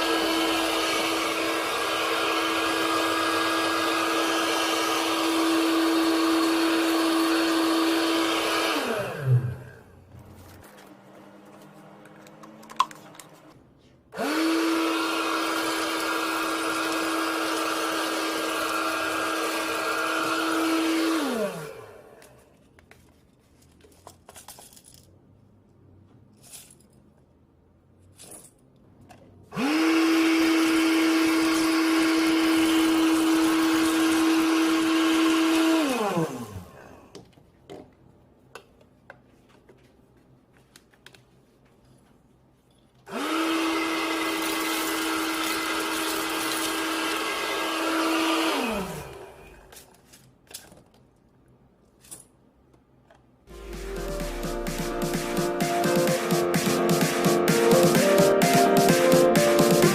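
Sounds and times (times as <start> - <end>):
vacuum cleaner motor humming: 0.0 - 9.9, 14.2 - 22.3, 29.5 - 37.0, 43.1 - 49.7.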